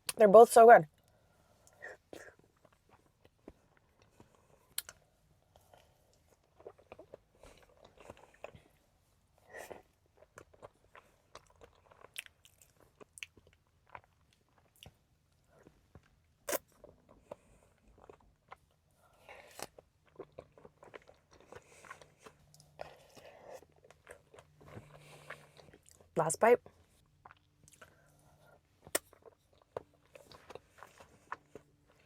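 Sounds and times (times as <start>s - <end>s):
chewing and biting food: 1.6s - 32.0s.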